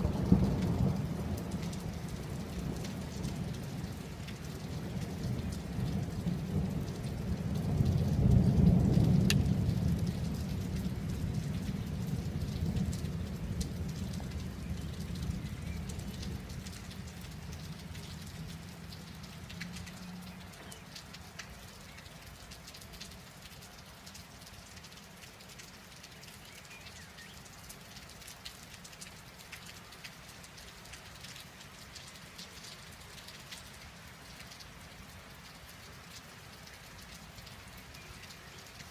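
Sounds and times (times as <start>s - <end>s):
rain drops ticking on a surface: 0.0s - 38.9s
thunder rumbling: 4.8s - 18.7s.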